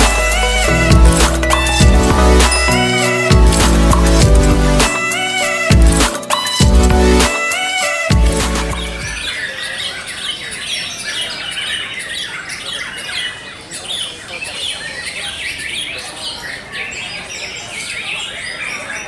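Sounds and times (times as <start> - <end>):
music track: 0.0 - 9.2
birds singing chirps and whistles: 9.0 - 19.0.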